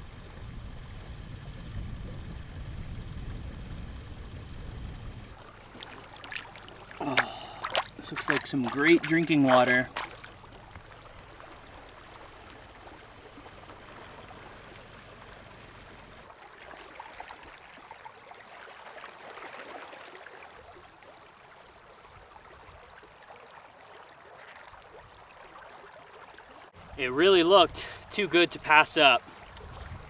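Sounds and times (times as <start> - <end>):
faint low rumble: 0.0 - 6.2
stream trickling: 5.2 - 30.0.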